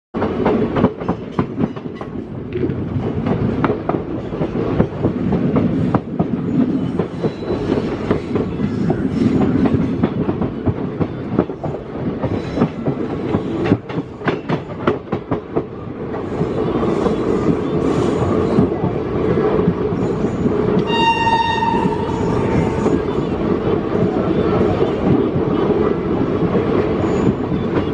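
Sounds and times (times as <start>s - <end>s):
train wheels clattering on rails: 0.2s - 27.9s
train horn: 20.8s - 23.1s.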